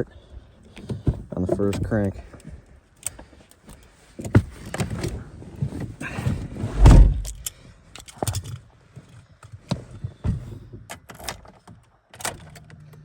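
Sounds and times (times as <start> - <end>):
car door thunks: 6.5 - 7.4.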